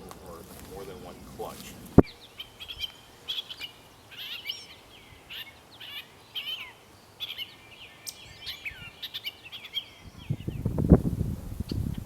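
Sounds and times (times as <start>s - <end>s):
low rustling noise: 0.0s - 3.1s, 10.2s - 12.0s
songbirds chirping and warbling: 0.0s - 12.0s.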